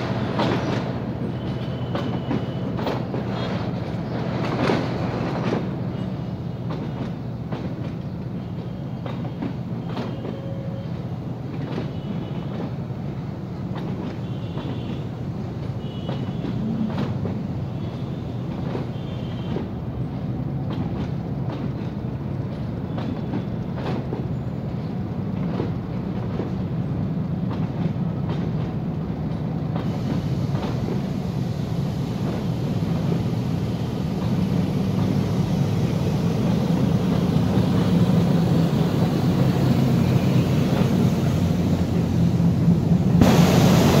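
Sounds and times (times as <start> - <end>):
wheels clicking over rail joints: 20.6 - 29.9.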